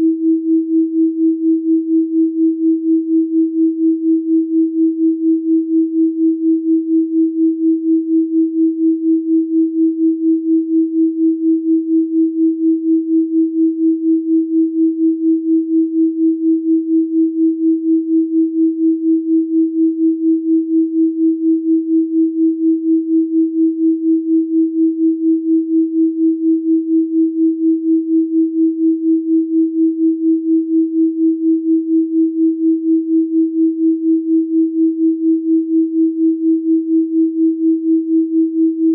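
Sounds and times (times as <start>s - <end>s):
pulsing sine tone: 0.0s - 38.9s.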